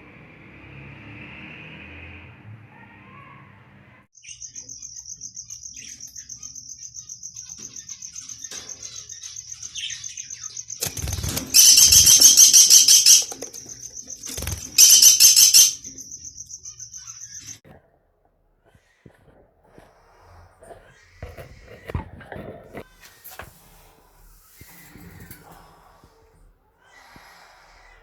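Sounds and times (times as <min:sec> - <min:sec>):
shrill bird calling bursts: 0:04.2 - 0:17.6
lovebirds chattering: 0:04.2 - 0:17.7.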